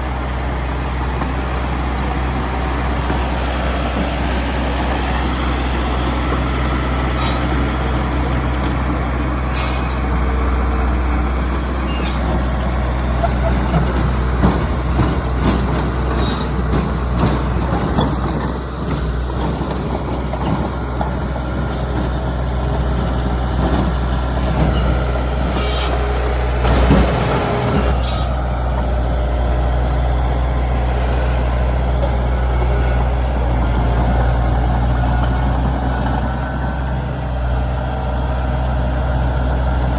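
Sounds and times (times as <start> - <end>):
heavy diesel engine running: 0.0 - 39.9
short air hisses: 9.4 - 10.0, 25.6 - 26.0.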